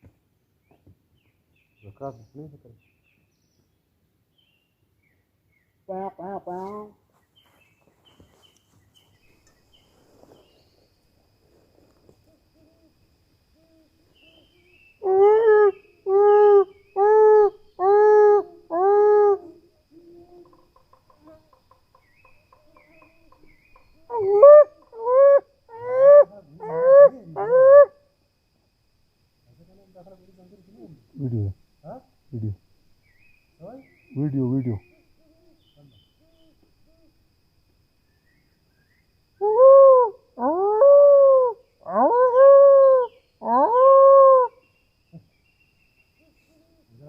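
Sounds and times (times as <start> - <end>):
loud animal calls: 24.1 - 28.0, 39.4 - 44.6.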